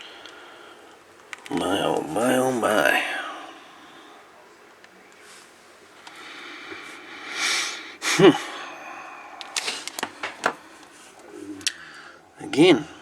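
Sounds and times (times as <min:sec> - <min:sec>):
wordless vocal sound: 0:01.4 - 0:13.0
man exhaling heavily: 0:07.2 - 0:10.8.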